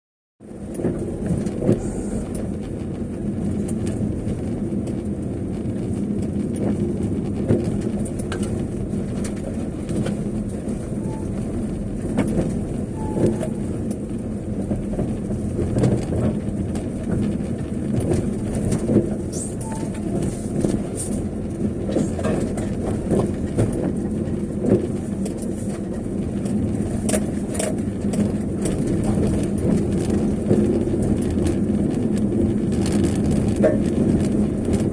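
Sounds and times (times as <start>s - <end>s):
vehicle engine and road rumble: 0.4s - 34.9s.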